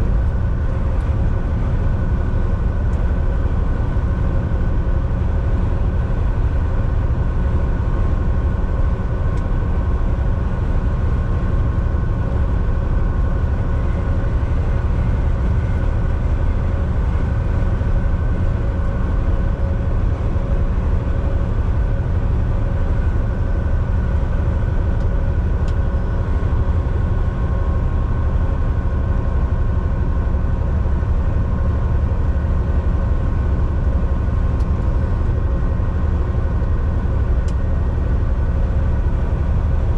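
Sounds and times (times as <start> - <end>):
faint steady whine: 0.0 - 39.9
truck engine and road rumble: 0.0 - 39.9.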